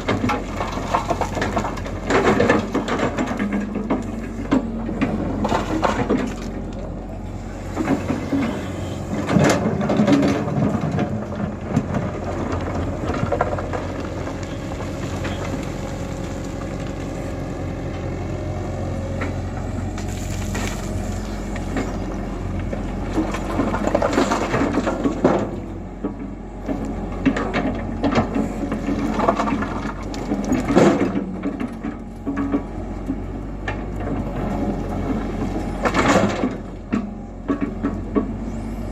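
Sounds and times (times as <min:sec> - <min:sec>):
bucket crashing and scraping: 0:00.0 - 0:06.8, 0:23.0 - 0:25.7, 0:27.2 - 0:31.9
excavator diesel engine running: 0:00.0 - 0:38.9.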